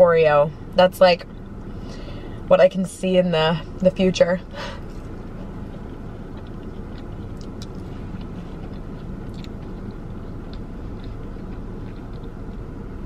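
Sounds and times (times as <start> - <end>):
car engine hum: 0.0 - 13.0
person chewing crunchy food: 4.8 - 12.7.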